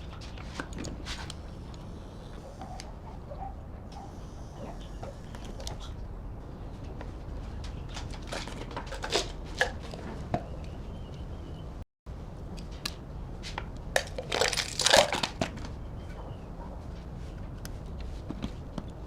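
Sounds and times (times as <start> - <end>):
low steady hum: 0.0 - 19.0
crinkling rustle: 14.0 - 15.8.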